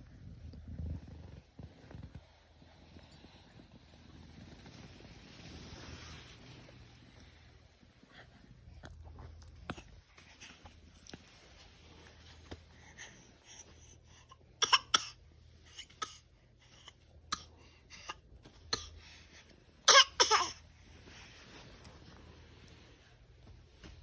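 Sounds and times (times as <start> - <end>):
faint low hum: 0.0 - 24.0
small clicks and rustles: 8.8 - 12.7.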